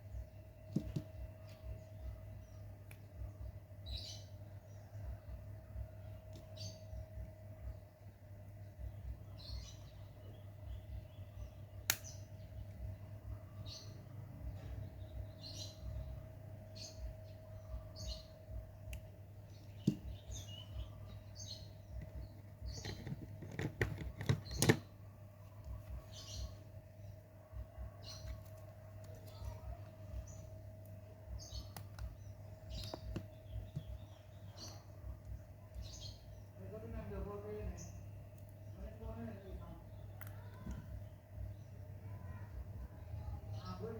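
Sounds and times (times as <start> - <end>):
steady low hum: 0.0 - 43.9
sharp clicks: 11.8 - 12.2.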